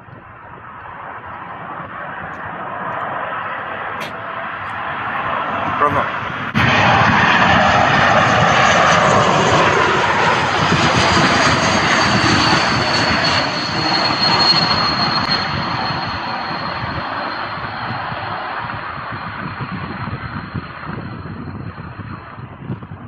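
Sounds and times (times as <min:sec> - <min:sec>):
jet engines rushing with high whine: 0:00.0 - 0:23.0.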